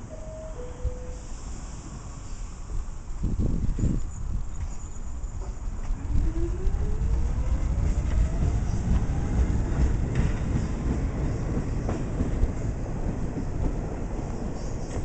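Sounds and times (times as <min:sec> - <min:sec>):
train wheels rumbling: 0:01.2 - 0:15.0
wheels clacking over rail joints: 0:05.4 - 0:15.0.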